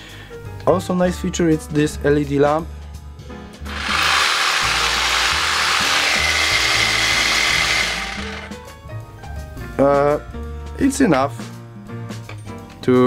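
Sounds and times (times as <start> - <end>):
cordless jigsaw rasping buzz: 3.7 - 8.6.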